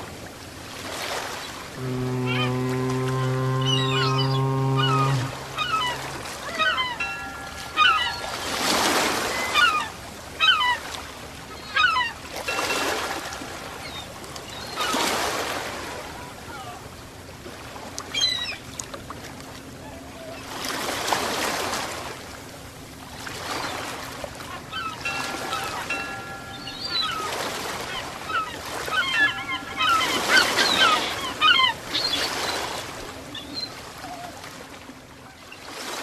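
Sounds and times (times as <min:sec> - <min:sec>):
ocean waves breaking: 0:00.0 - 0:36.0
birds chirping: 0:01.8 - 0:10.9, 0:11.5 - 0:15.5, 0:23.5 - 0:33.8.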